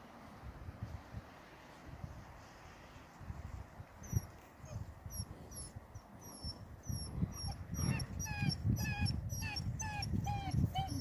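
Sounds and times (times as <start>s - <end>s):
puppies whimpering and yipping: 4.0s - 11.0s.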